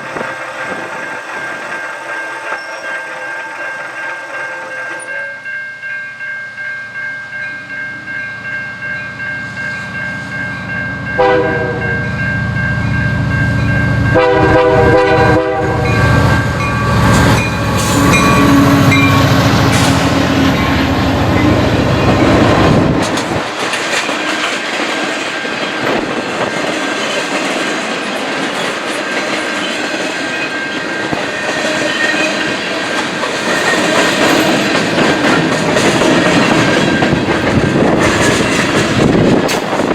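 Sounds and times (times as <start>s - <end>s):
train wheels clattering on rails: 0.0s - 5.1s, 14.2s - 39.9s
level crossing bells ringing: 0.6s - 14.5s
locomotive rumbling past: 7.5s - 39.9s
train horn blasts: 11.2s - 12.2s, 14.0s - 17.1s, 17.8s - 23.0s.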